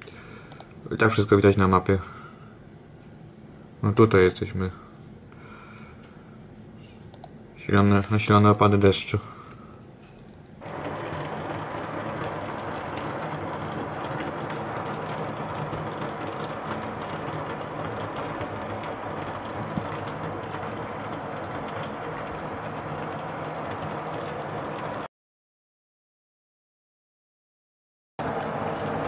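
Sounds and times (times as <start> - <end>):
heavy rain pouring: 10.6 - 25.1, 28.2 - 29.0.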